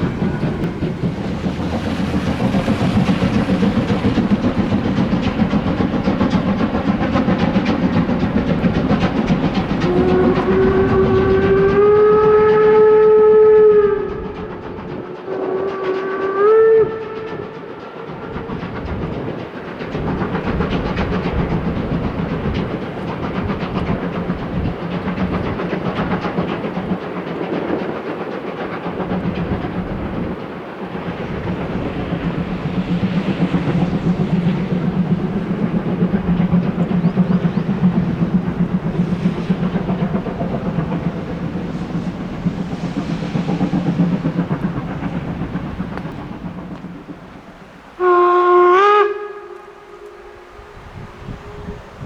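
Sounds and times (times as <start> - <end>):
steam locomotive running sound: 0.0 - 52.0
steam whistle through small speaker: 9.8 - 14.4, 15.3 - 17.4, 48.0 - 52.0.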